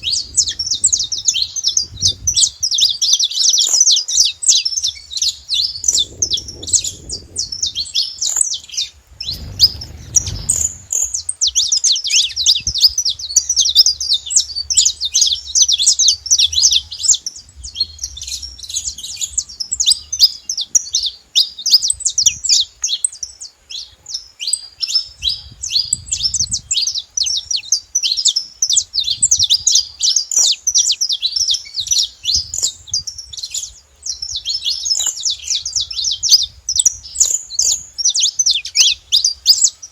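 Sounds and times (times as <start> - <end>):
finches chirping: 0.0 - 39.9
low rumble: 8.7 - 11.6.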